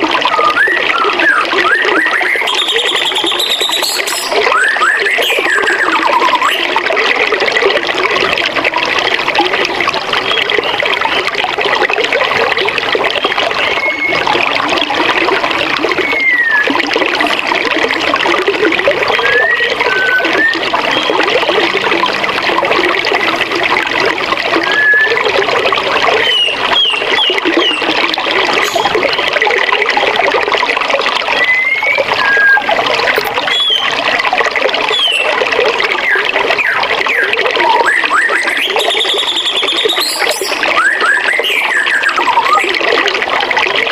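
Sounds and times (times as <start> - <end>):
bird chirps and whistles: 0.3 - 6.6, 13.2 - 14.2, 16.0 - 16.7, 19.1 - 21.5, 24.7 - 25.2, 26.2 - 27.9, 31.4 - 33.9, 34.9 - 35.3, 36.0 - 42.7.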